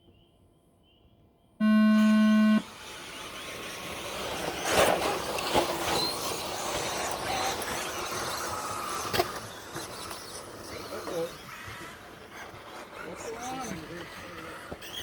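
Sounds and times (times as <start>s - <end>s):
electronic start tone: 1.6s - 2.7s
rc trucks motors and tyres hissing: 1.6s - 15.0s.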